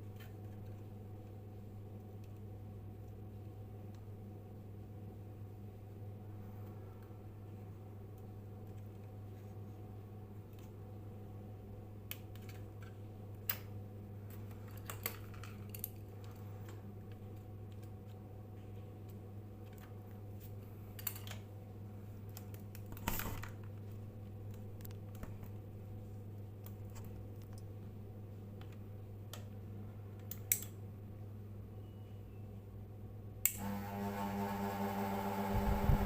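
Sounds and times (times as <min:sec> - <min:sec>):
low electrical hum: 0:00.0 - 0:36.0
small parts clicking and knocking: 0:14.3 - 0:18.2, 0:20.9 - 0:21.5.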